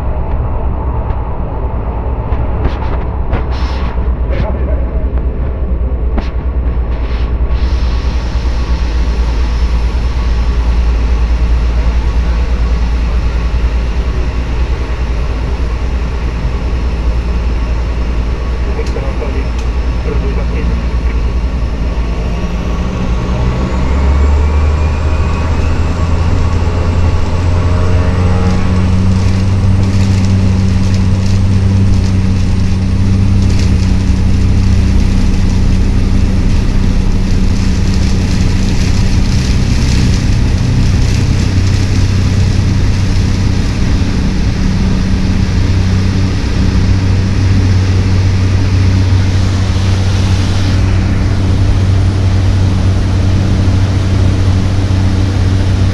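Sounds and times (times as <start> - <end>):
turboprop engine whine: 0.0 - 55.9.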